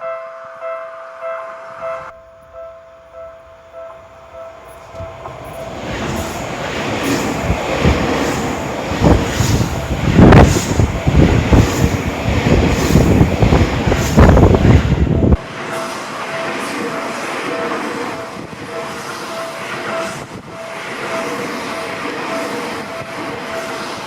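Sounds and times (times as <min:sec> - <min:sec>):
crossing warning bell: 0:00.0 - 0:12.3, 0:13.0 - 0:24.0
train wheels clacking over rail joints: 0:03.9 - 0:14.9.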